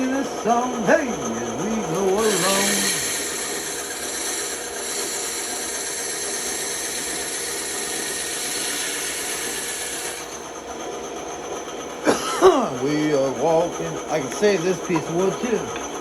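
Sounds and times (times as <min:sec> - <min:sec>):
bandsaw cutting wood: 0:00.0 - 0:10.4.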